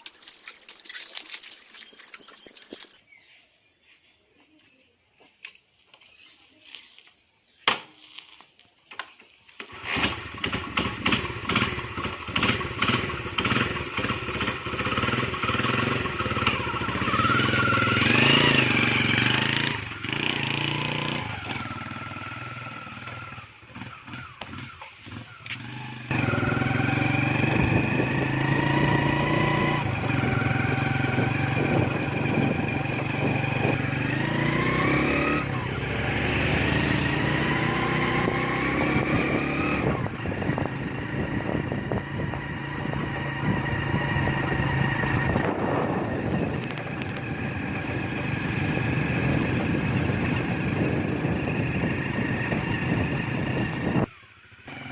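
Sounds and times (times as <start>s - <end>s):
motorcycle engine revving: 9.7s - 54.0s.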